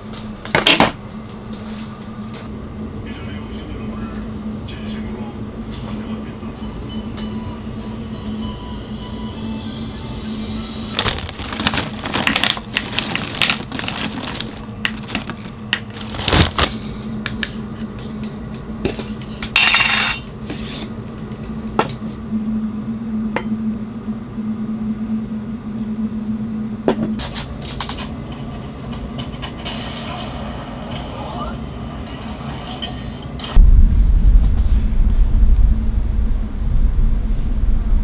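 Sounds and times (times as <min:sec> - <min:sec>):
steady low hum: 0:00.0 - 0:28.8, 0:33.4 - 0:38.0
dishes and cutlery clinking: 0:18.9 - 0:20.8.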